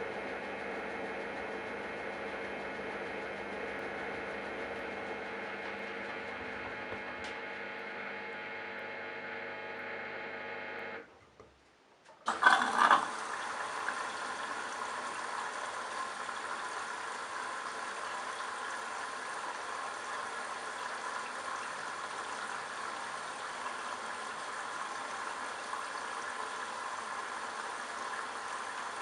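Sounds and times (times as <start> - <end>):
washing machine motor hum: 0.0 - 11.1, 12.2 - 29.0
water running into machine: 12.2 - 29.0.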